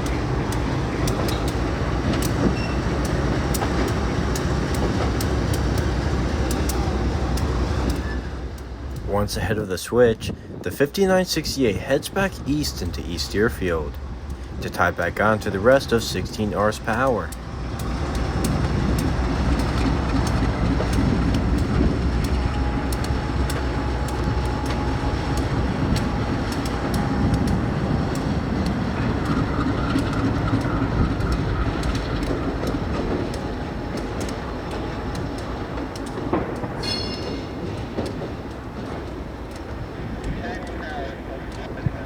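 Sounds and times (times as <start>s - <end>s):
wheels clicking over rail joints: 0.0s - 9.6s, 10.5s - 42.0s
locomotive engine rumbling: 0.0s - 42.0s
high squeal: 0.9s - 3.0s.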